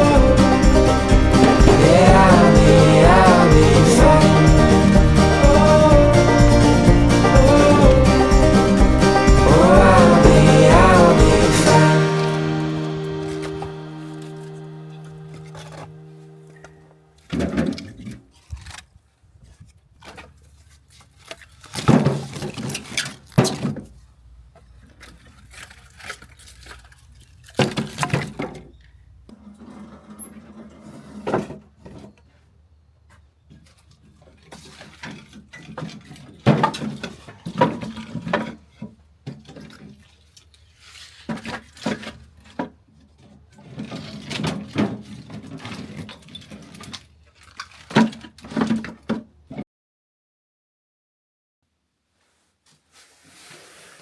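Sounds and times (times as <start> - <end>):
items being handled: 12.8 - 49.3.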